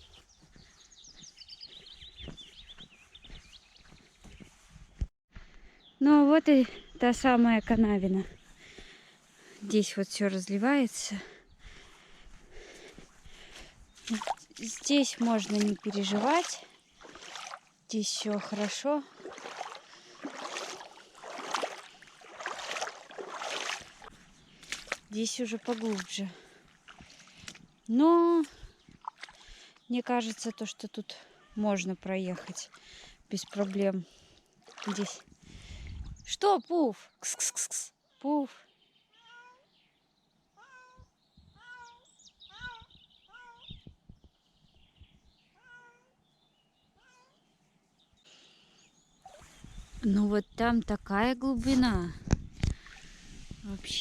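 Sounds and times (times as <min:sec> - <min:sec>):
footsteps wading through water: 0:00.0 - 0:05.7, 0:11.2 - 0:36.1, 0:51.7 - 0:54.0
cat meowing: 0:45.6 - 0:46.1.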